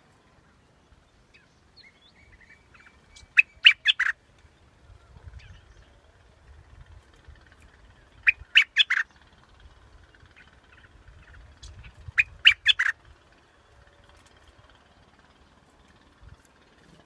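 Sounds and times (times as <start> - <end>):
bird calling: 1.3 - 4.2, 8.0 - 13.0.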